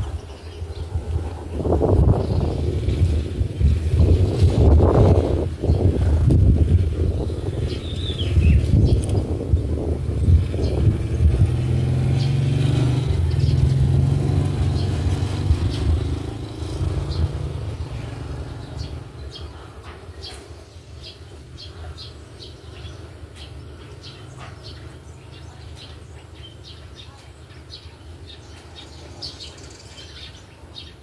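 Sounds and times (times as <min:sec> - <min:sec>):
vehicle engine passing by: 0:00.0 - 0:19.9
sparrow chirps: 0:00.0 - 0:31.0.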